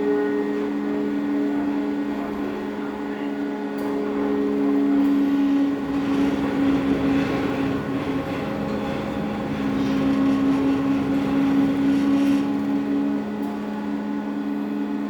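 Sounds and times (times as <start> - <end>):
ship engines droning: 0.0 - 15.0.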